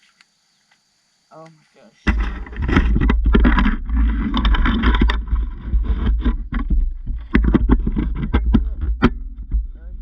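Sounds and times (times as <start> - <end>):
knocks and rattles: 2.0 - 10.0.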